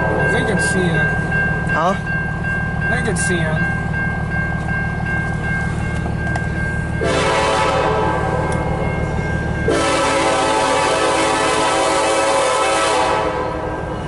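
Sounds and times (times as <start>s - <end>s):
locomotive air horn blasts: 7.0s - 8.3s, 9.7s - 13.7s.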